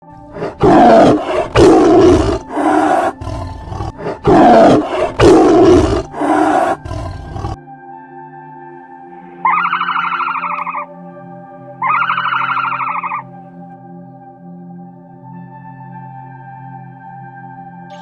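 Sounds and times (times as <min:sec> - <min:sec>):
big cat roaring: 0:00.3 - 0:07.6.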